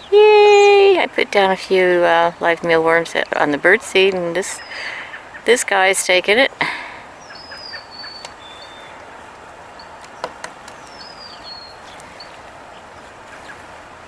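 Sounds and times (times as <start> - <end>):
outdoor background noise: 0.0 - 14.0
songbird singing: 0.0 - 14.0.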